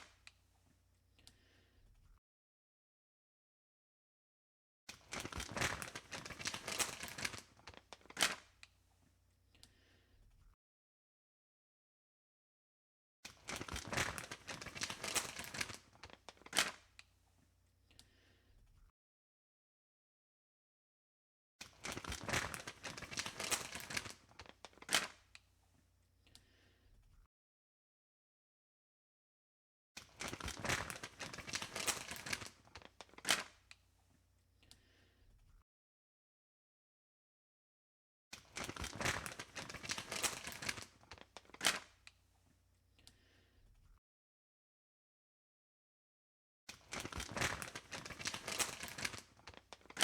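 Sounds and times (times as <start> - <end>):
crinkling and rustling: 4.9 - 8.5, 13.3 - 16.8, 21.6 - 25.4, 30.0 - 33.7, 38.4 - 42.2, 46.7 - 50.0.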